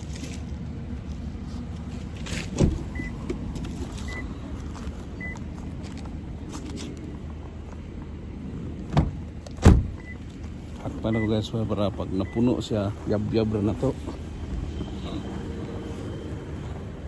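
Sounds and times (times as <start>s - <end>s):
car engine low rumble: 0.0s - 17.0s
car warning chime beeps: 2.9s - 3.2s, 4.0s - 4.3s, 5.2s - 5.4s, 10.0s - 10.2s, 11.1s - 12.7s.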